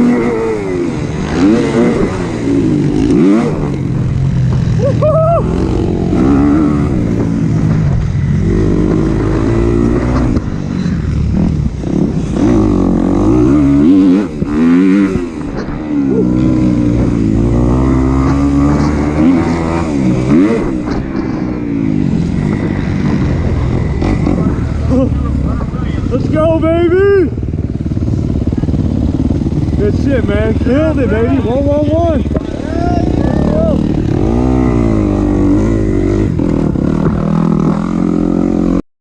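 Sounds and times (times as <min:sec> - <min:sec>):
motorbike engine revving: 0:00.0 - 0:38.8
wind rushing: 0:05.4 - 0:26.7.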